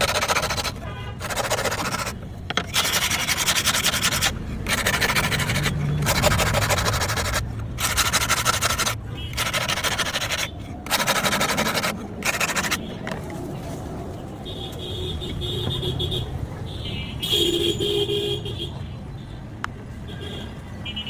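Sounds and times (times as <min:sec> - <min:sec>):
abrasive rubbing strokes: 0:00.0 - 0:12.8.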